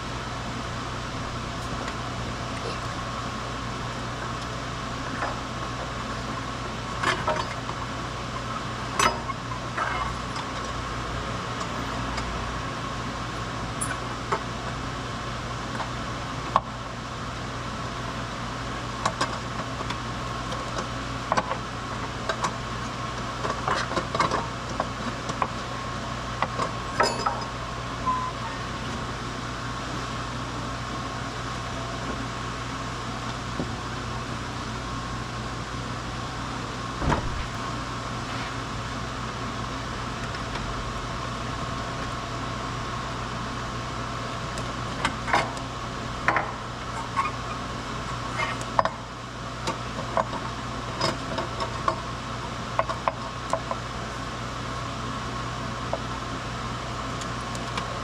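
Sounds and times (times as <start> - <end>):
steady hum: 25.6 - 47.0.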